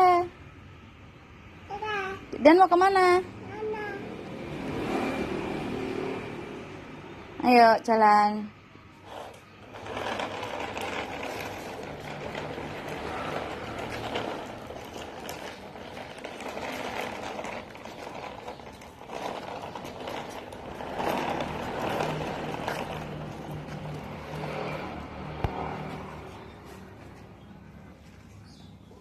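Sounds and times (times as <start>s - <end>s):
wheels rolling: 2.4s - 8.1s, 8.9s - 29.0s
toy truck electric motor: 9.0s - 25.1s.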